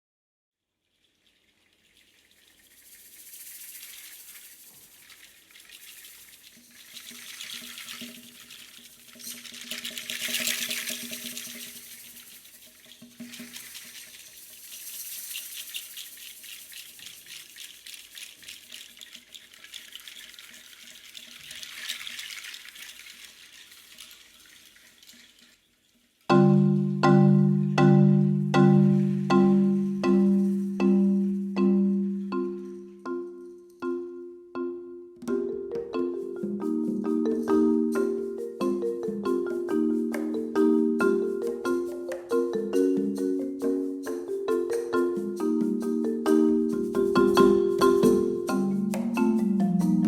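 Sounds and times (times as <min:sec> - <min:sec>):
rattling hiss rain effect: 0:00.9 - 0:50.0
faint low held tones: 0:26.4 - 0:35.3.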